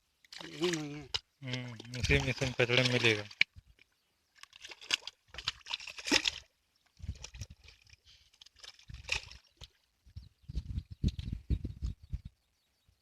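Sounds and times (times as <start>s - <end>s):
water sloshing and splashing: 0.2s - 9.9s.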